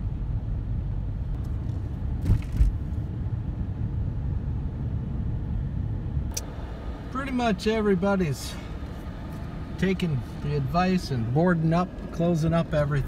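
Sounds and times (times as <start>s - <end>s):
engine and tyre rumble: 0.0s - 13.0s
short bumps: 1.4s - 2.8s.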